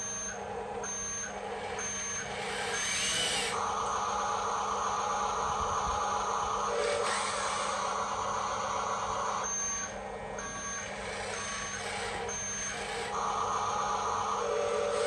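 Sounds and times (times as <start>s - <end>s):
reversing beeper beeps: 0.0s - 3.2s, 8.3s - 15.0s.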